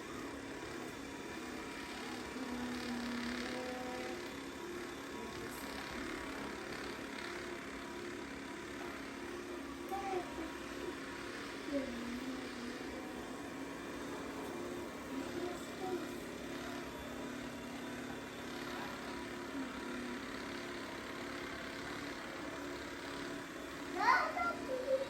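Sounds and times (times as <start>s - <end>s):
robot vacuum whirring: 0.0s - 25.0s.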